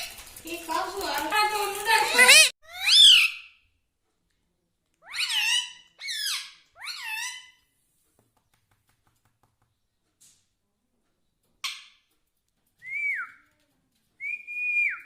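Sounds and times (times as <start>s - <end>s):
parrot squeaky calls: 2.1s - 3.6s, 5.0s - 7.7s.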